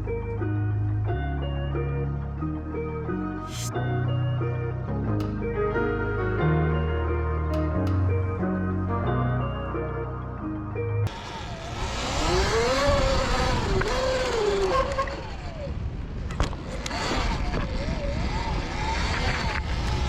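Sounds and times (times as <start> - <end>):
sharp click: 7.5 - 8.1
electric motorbike motor whining: 11.1 - 20.0.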